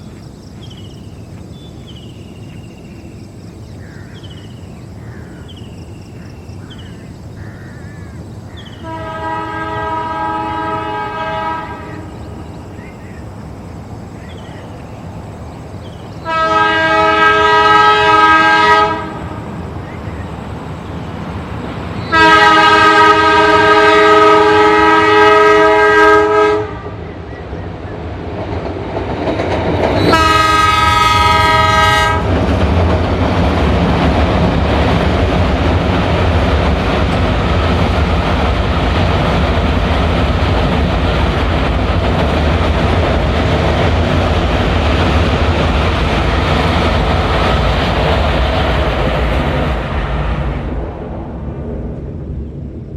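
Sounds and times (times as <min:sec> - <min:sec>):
train passing with wheel clatter: 0:00.0 - 0:52.9
train horn blasts: 0:08.8 - 0:12.1, 0:16.2 - 0:19.4, 0:22.1 - 0:27.0, 0:30.0 - 0:32.4.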